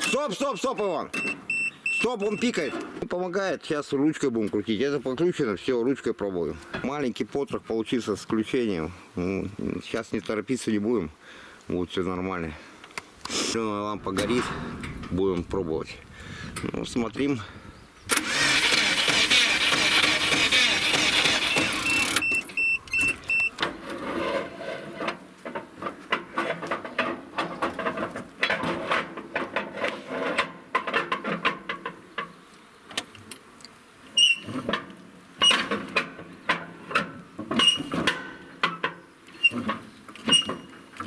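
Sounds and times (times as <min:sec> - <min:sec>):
booster pack beeps: 0:00.0 - 0:02.8, 0:20.1 - 0:23.6
engine starter cranking: 0:18.1 - 0:23.6.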